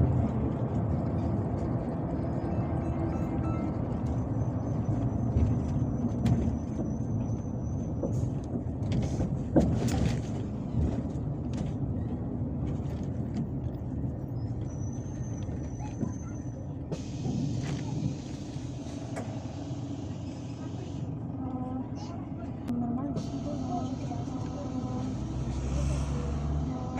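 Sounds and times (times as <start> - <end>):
bus engine and road rumble: 0.0 - 26.9.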